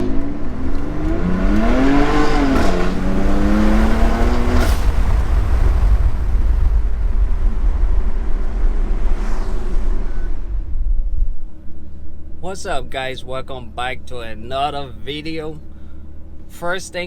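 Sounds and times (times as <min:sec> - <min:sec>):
car engine revving: 0:00.0 - 0:12.8
deep exhaust rumble: 0:00.0 - 0:17.0.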